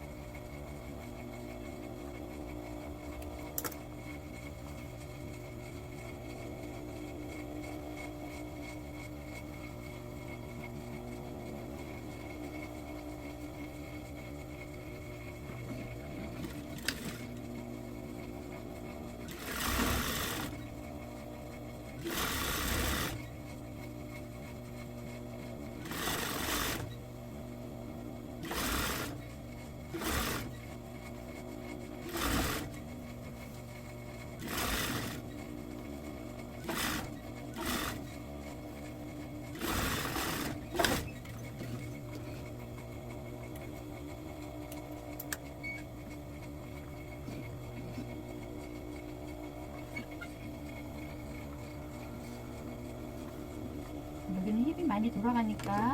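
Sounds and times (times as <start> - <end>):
sewing machine stitching: 15.7 - 17.6, 19.1 - 20.8, 21.9 - 23.5, 25.7 - 27.0, 28.4 - 33.4, 34.1 - 35.6, 36.4 - 42.3
steady hum: 27.1 - 55.9.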